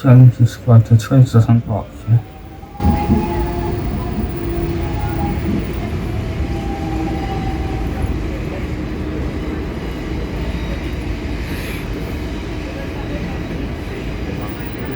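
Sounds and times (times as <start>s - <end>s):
train rumbling: 0.0s - 14.9s
humming tones: 2.2s - 8.2s.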